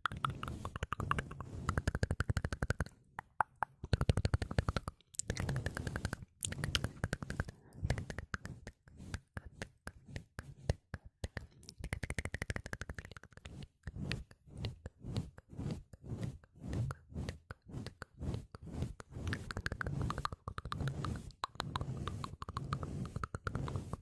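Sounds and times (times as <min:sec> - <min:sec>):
tongue clicks and lip pops: 0:00.0 - 0:07.6
soft low puffs: 0:04.3 - 0:11.0, 0:13.4 - 0:24.0.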